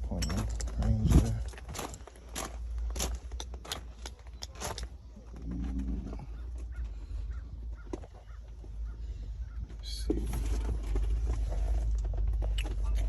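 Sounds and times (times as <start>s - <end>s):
sharp footsteps: 0.0s - 8.9s
steady low rumble: 0.0s - 13.0s.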